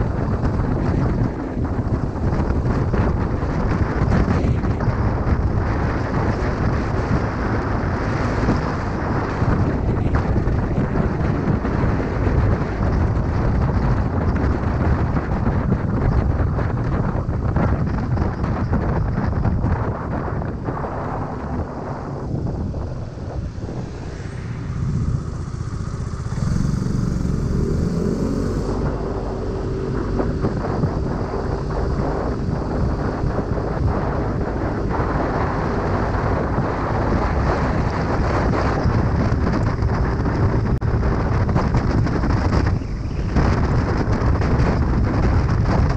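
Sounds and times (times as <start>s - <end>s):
motor scooter engine rumble: 0.0s - 45.9s
wind buffeting microphone: 0.0s - 45.9s
steady whine: 21.6s - 35.3s.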